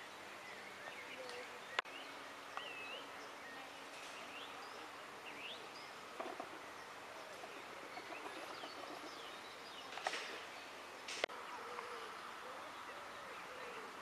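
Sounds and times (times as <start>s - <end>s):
small birds chirping: 0.0s - 14.0s
steady outdoor hiss: 0.0s - 14.0s.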